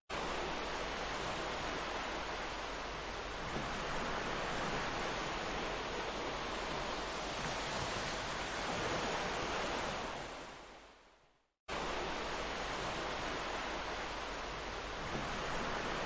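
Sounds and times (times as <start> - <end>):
ocean surf washing onto beach: 0.1 - 11.0, 11.7 - 16.0.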